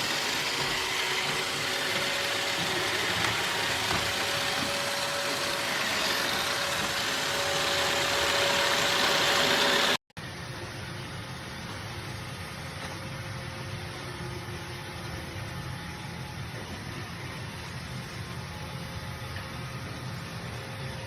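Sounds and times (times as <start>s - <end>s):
robot vacuum whirring: 0.0s - 10.0s.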